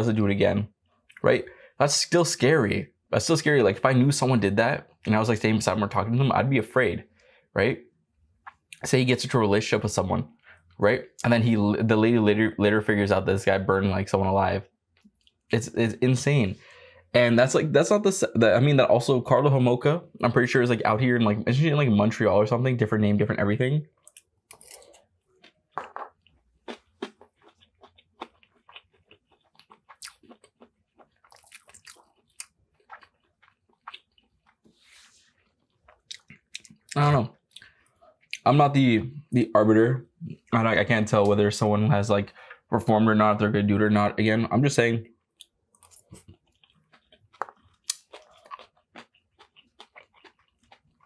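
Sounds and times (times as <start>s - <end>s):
crunchy chewing of food: 24.0s - 38.4s, 45.3s - 51.0s.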